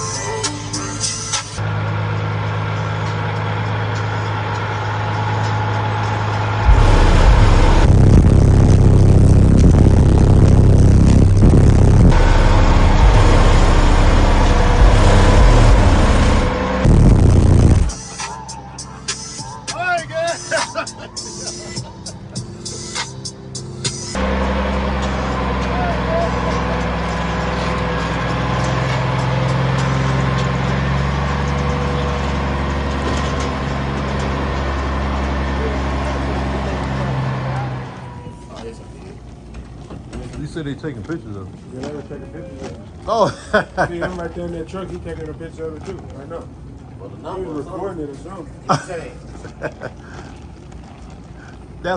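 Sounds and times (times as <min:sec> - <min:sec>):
truck engine idling: 0:00.0 - 0:43.0
deep bass from subwoofers: 0:06.0 - 0:19.5.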